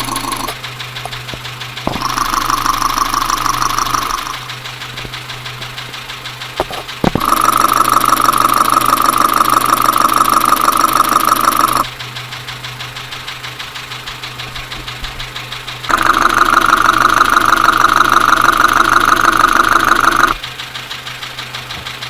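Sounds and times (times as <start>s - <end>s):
engine idling with rhythmic knock: 0.0s - 22.0s.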